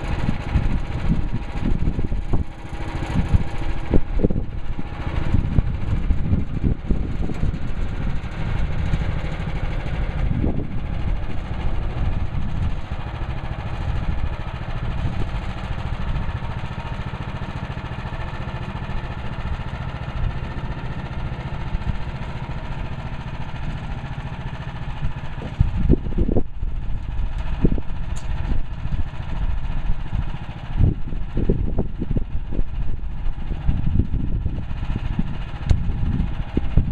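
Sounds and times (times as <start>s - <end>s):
band sawmill engine running: 0.0s - 36.9s.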